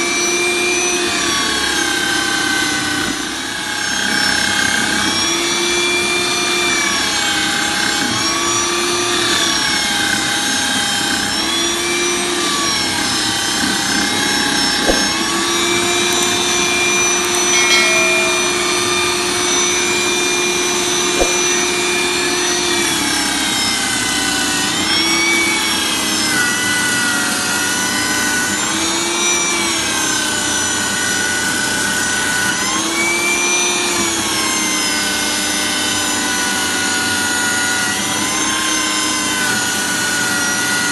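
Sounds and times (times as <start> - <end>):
sharp clicks: 16.1 - 16.5, 17.3 - 18.8.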